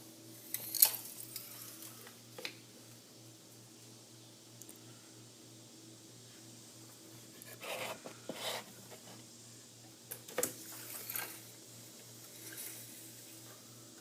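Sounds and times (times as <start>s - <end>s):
faint low hum: 0.0s - 14.0s
rubbing and scraping: 7.3s - 9.2s.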